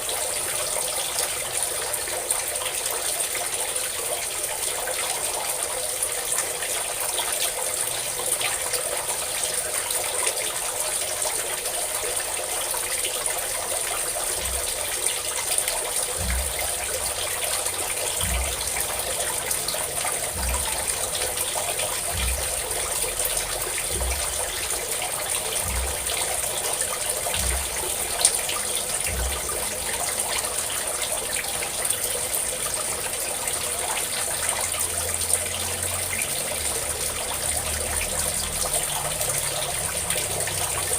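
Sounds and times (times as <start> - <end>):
water pouring from a spout: 0.0 - 40.9
faint low thuds: 16.0 - 17.4, 18.1 - 24.8, 25.6 - 26.4.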